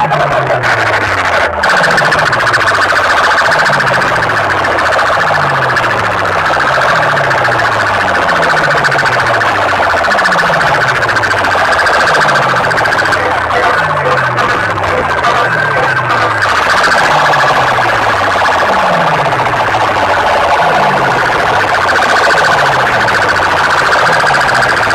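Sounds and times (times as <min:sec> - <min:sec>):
siren-like electronic effect: 0:00.0 - 0:24.9.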